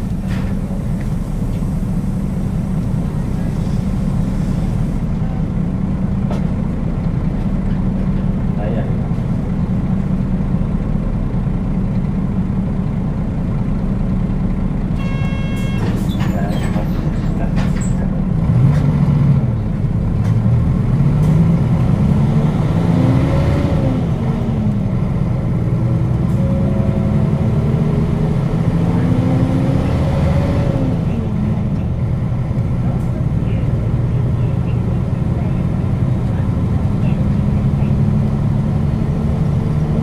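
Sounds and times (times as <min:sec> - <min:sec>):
bus diesel engine: 0:00.0 - 0:40.0
short high electronic chime: 0:15.0 - 0:15.9.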